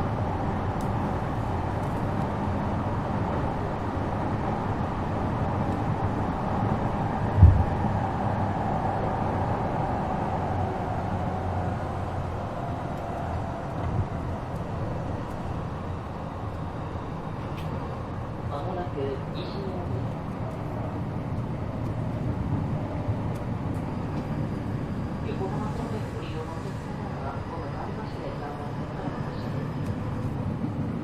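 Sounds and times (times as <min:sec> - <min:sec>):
train wheels and motors rumbling: 0:00.0 - 0:31.0
sharp low thud: 0:07.4 - 0:07.8.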